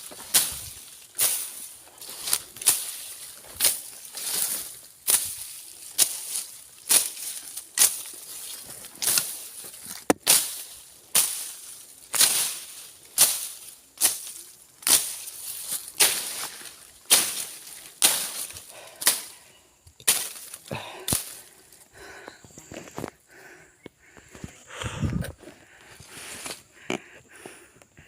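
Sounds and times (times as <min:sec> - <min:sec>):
machete slashing through brush: 0:00.0 - 0:19.4, 0:20.0 - 0:21.4.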